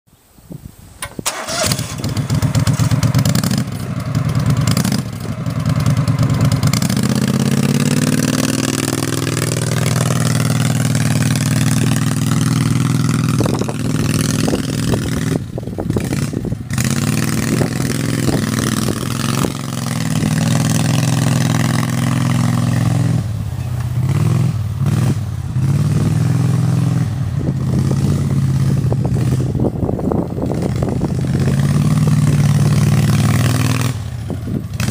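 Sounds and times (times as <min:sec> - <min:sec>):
off-road vehicle engine: 0:01.0 - 0:34.9.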